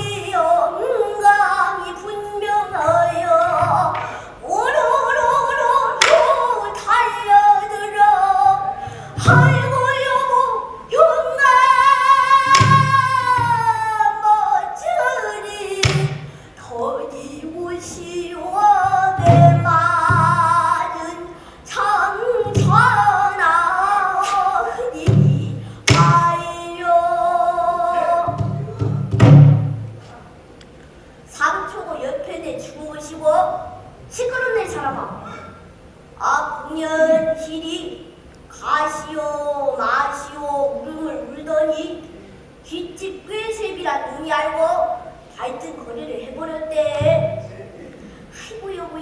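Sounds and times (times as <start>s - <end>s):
child singing: 0.0s - 29.2s, 31.3s - 35.4s, 36.2s - 47.6s, 48.4s - 49.0s
sharp drum strikes: 9.2s - 9.8s, 12.4s - 13.8s, 15.8s - 16.4s, 18.8s - 20.7s, 22.4s - 23.2s, 24.2s - 26.4s, 28.2s - 30.0s.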